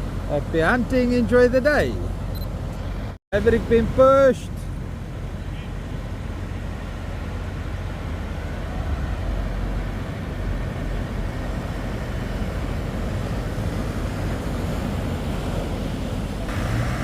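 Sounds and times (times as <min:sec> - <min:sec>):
outboard motors rumbling: 0:00.0 - 0:17.0.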